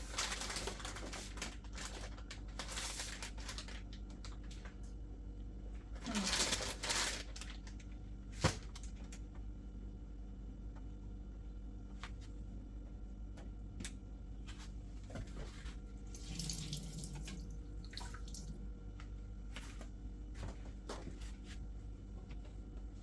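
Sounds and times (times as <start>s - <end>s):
low steady hum: 0.0s - 23.0s
water running from a tap: 16.0s - 18.6s.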